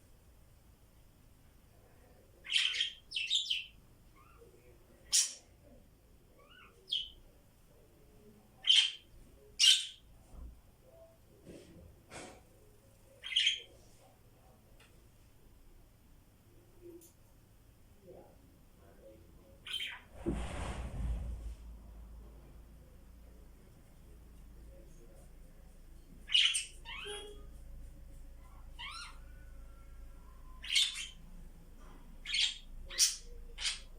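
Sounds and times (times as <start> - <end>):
budgies chirping: 13.2 - 13.7, 19.6 - 20.1, 26.3 - 27.4, 28.8 - 29.2, 30.6 - 31.2, 32.2 - 33.9.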